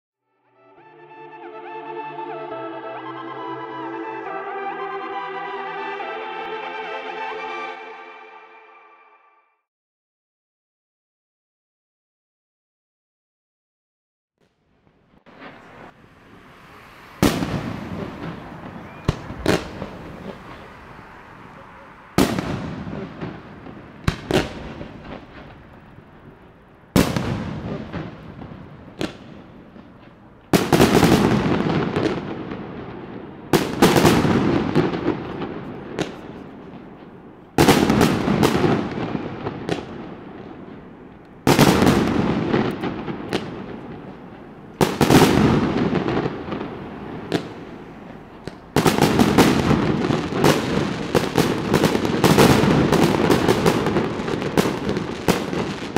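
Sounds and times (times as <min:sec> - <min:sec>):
small firework cracks: 0:14.4 - 0:55.9.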